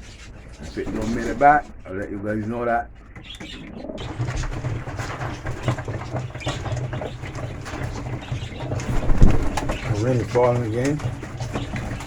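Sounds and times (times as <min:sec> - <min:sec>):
pigeons cooing: 0:00.0 - 0:12.0
rain pattering: 0:08.5 - 0:11.0.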